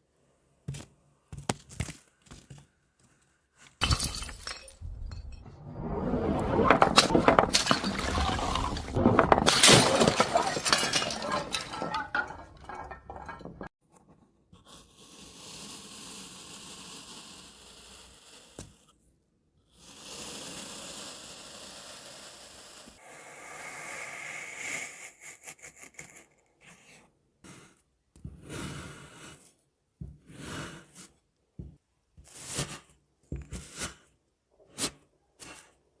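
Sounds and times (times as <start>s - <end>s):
glass crunching: 3.8s - 5.5s, 6.5s - 13.7s
glass shattering: 3.8s - 13.7s.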